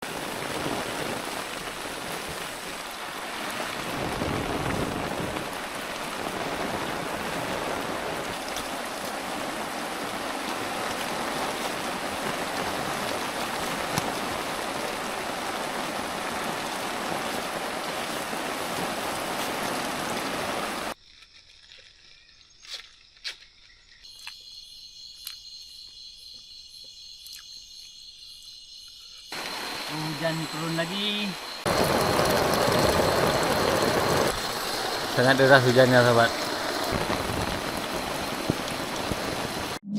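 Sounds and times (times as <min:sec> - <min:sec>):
heavy rain falling: 0:00.0 - 0:21.0, 0:29.3 - 0:39.8
insects trilling: 0:03.9 - 0:39.8.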